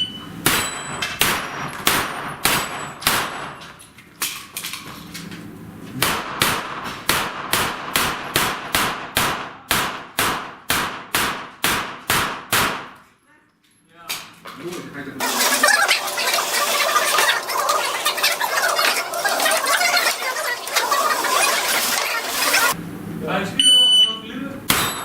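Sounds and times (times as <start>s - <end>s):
steel targets clanging: 0.0s - 4.5s, 24.7s - 25.0s
pistol gunshots: 0.4s - 3.6s, 6.0s - 13.0s.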